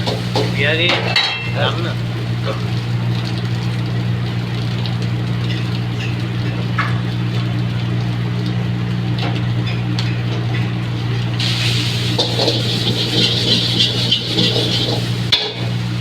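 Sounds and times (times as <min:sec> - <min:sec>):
loud sizzle in wok: 0:00.0 - 0:16.0
wok burner humming: 0:00.0 - 0:16.0.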